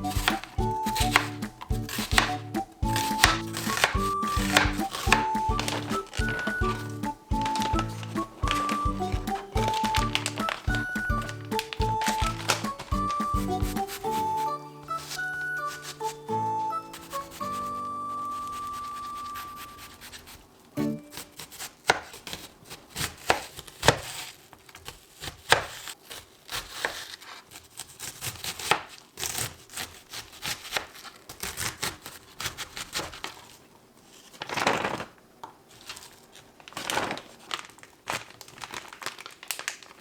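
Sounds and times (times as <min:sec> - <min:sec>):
plastic crinkling: 0:00.0 - 0:20.8, 0:32.2 - 0:40.0.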